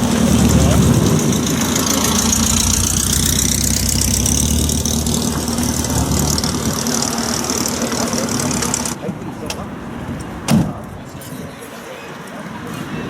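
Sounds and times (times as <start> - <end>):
car engine idling: 0.0 - 9.0.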